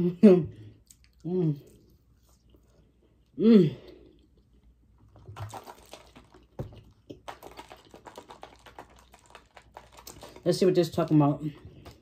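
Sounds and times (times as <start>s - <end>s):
wet chewing of fries: 0.8s - 3.3s, 3.9s - 10.5s.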